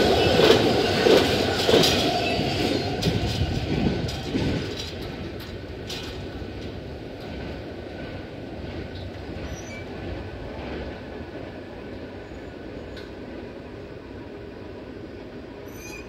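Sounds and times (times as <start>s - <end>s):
freight train wheels clattering: 0.0s - 11.5s.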